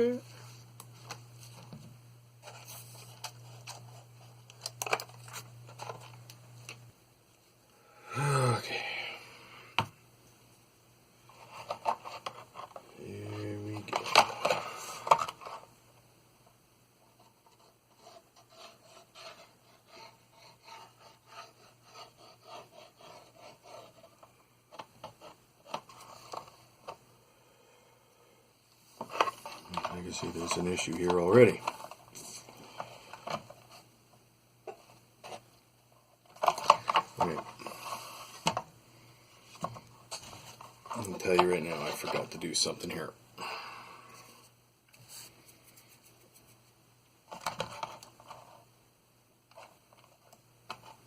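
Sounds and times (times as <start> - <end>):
rubbing on plastic parts: 11.3 - 15.7, 17.0 - 27.0, 44.9 - 48.7.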